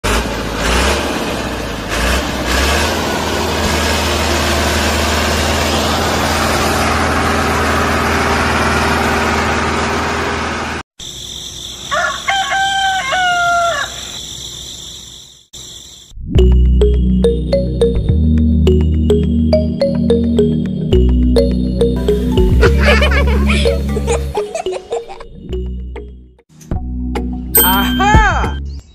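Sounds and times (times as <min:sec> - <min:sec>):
rooster crowing: 0:11.8 - 0:14.2.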